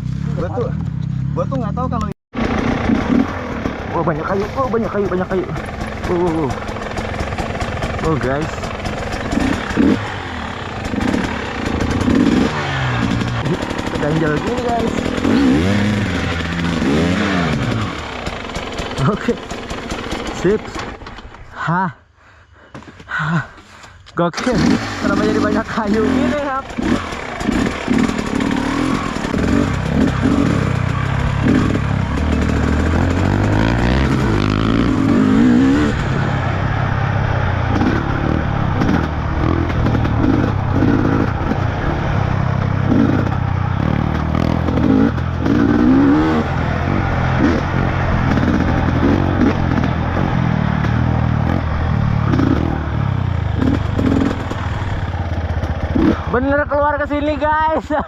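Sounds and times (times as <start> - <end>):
motorcycle engine revving: 0.0 - 21.4, 24.3 - 58.0
bike knocks and rattles: 2.4 - 21.5, 25.9 - 35.8.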